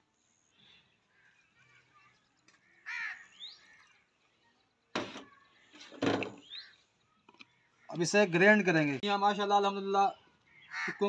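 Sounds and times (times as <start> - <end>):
bird rising chirp: 5.1 - 7.0.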